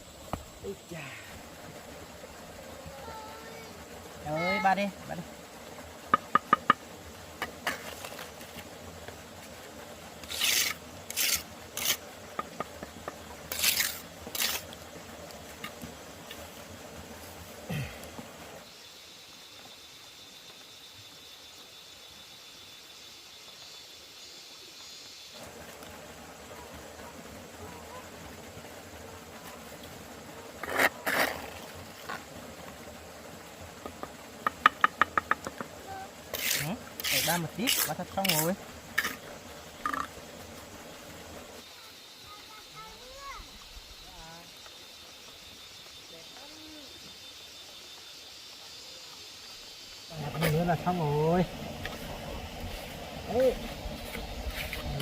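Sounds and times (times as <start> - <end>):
loud scrapes: 10.2 - 12.0, 13.5 - 14.7
trowel scraping mortar: 10.2 - 14.8, 30.6 - 32.1, 36.3 - 39.3, 54.0 - 55.0.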